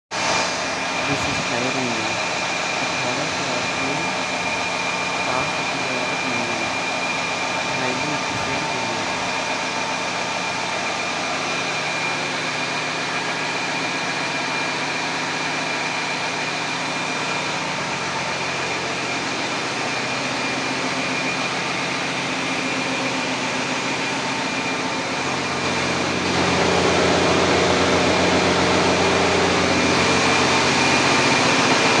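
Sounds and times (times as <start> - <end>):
fire engine running: 0.2 - 32.0
thin high whine: 0.3 - 13.8.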